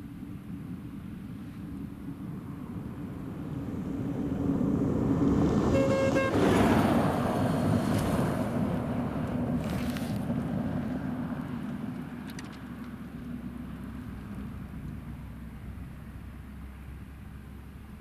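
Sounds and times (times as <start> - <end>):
short horn toot: 5.7 - 6.4.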